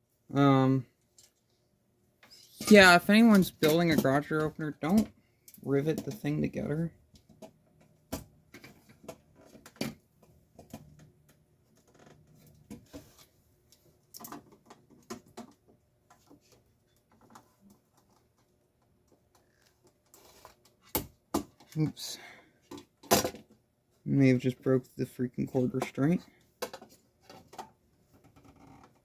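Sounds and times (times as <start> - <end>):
tools and parts clicking and tapping: 2.2 - 6.4, 7.0 - 21.8, 22.6 - 23.6, 25.8 - 29.0.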